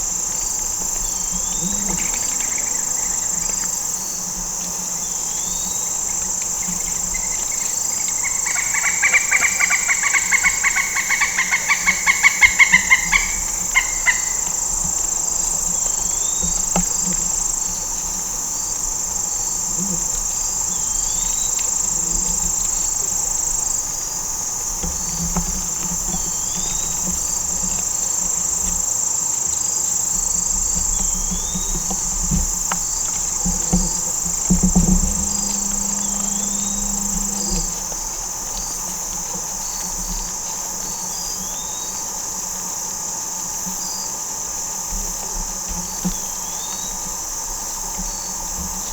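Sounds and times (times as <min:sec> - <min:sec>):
crickets and night insects: 0:00.0 - 0:48.9
animal pulsed clucking calls: 0:06.5 - 0:14.8.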